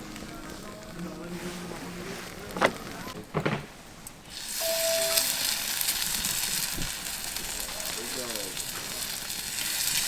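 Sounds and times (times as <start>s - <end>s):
food frying in a hot pan: 4.3s - 10.0s.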